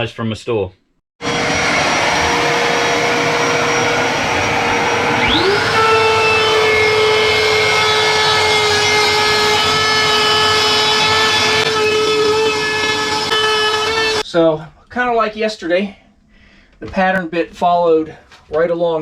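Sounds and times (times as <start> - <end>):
vacuum cleaner whine: 1.2 - 14.2.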